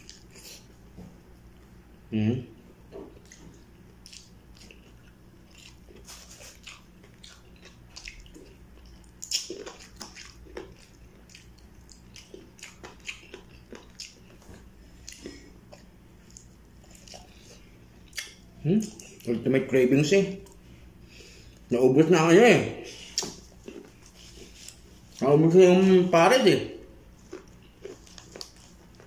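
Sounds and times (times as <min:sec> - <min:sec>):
person chewing with wet smacks: 0:00.0 - 0:00.8, 0:02.9 - 0:19.3, 0:23.0 - 0:25.2, 0:27.0 - 0:29.0.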